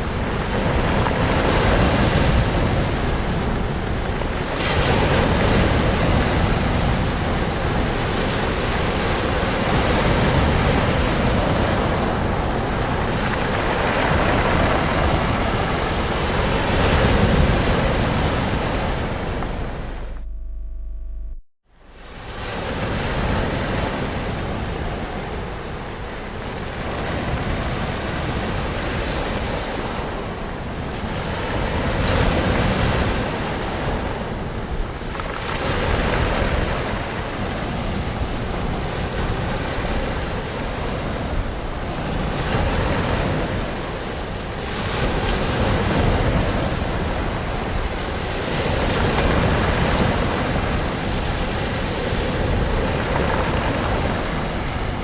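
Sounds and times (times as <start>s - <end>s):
ocean waves washing in: 0.0s - 20.2s.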